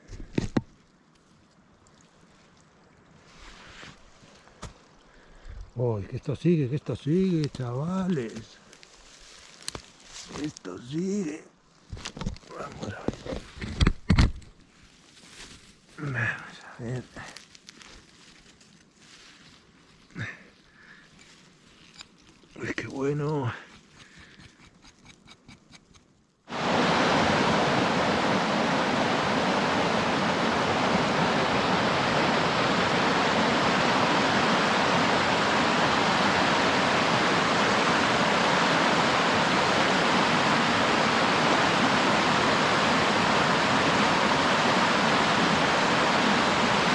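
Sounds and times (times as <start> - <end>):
loud steady rushing noise: 26.5 - 46.9.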